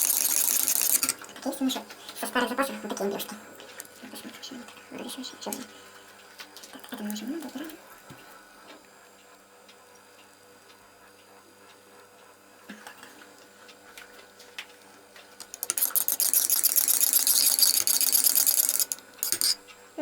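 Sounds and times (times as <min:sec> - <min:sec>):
tool clinking and scraping in pot: 0:15.4 - 0:19.6.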